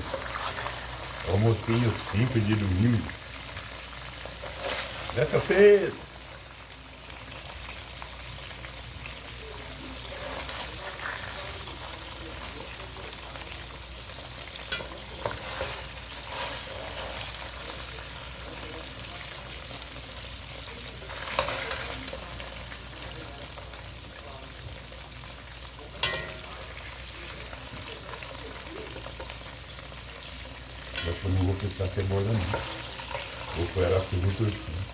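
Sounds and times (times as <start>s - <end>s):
ribs sizzling in a pan: 0.0s - 34.9s.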